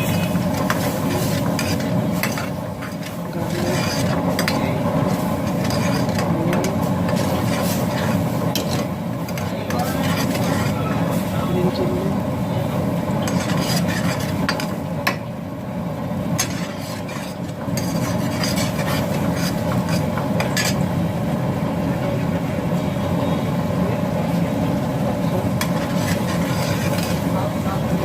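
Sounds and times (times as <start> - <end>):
spoon stirring food in a pan: 0.0 - 11.3, 12.9 - 15.3, 16.2 - 21.0, 25.2 - 28.0
steady low hum: 0.0 - 28.0.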